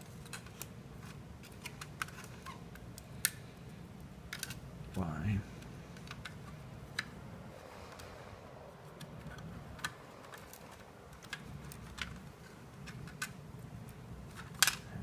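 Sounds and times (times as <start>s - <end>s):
plastic wire connectors clicking: 0.0s - 3.5s, 4.3s - 5.0s, 5.6s - 7.2s, 8.9s - 15.0s.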